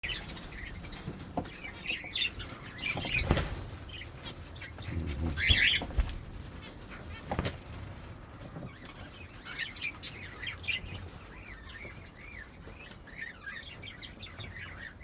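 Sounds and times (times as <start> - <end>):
birds chirping: 0.0 - 15.0
wing fluttering: 2.8 - 8.1.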